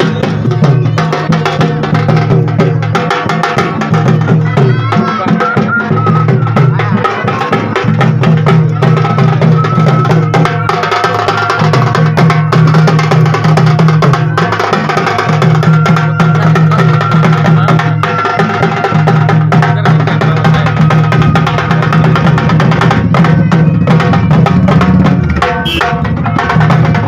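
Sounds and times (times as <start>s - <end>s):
rapid drumming: 0.0s - 27.0s.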